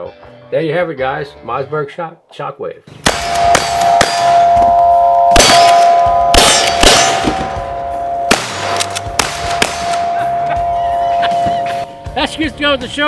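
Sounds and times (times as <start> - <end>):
metal struck with ringing clang: 3.1 - 12.4.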